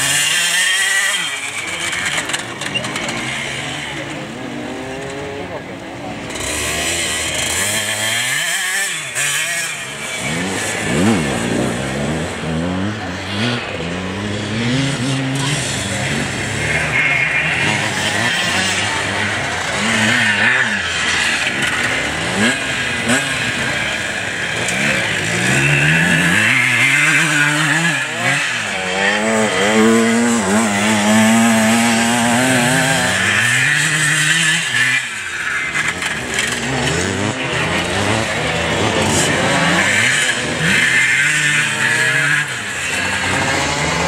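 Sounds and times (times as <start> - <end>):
motorcycle engines revving: 0.0 - 44.0.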